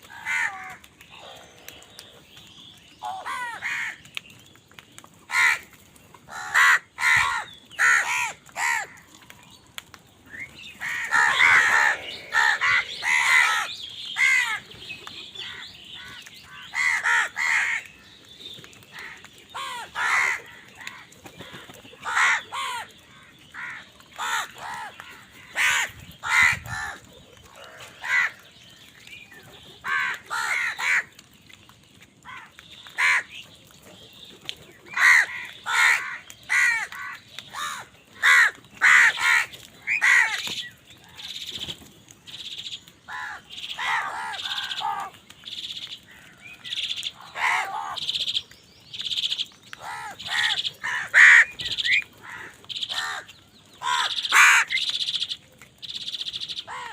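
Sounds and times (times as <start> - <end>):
crows cawing: 0.0 - 2.2, 3.0 - 4.0, 5.3 - 5.7, 6.3 - 9.2, 10.8 - 14.7, 15.4 - 18.0, 18.9 - 28.5, 29.8 - 31.2, 32.2 - 33.4, 34.9 - 41.4, 43.1 - 45.2, 47.2 - 48.1, 49.8 - 54.9, 56.7 - 56.9.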